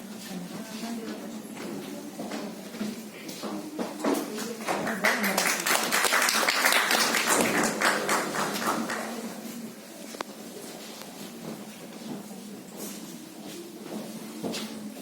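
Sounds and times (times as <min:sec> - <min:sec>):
audience applauding: 0:04.8 - 0:09.4.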